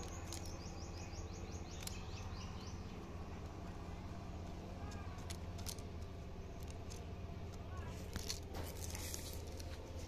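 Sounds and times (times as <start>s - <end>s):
bird chirping falling notes: 0.0s - 4.0s
steady low hum: 0.0s - 10.0s.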